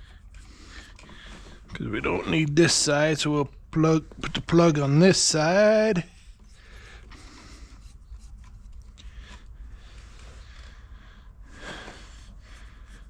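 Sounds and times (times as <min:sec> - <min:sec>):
light clicks of pipe fittings: 0:00.0 - 0:01.8, 0:06.1 - 0:10.7
low steady hum: 0:00.0 - 0:13.0.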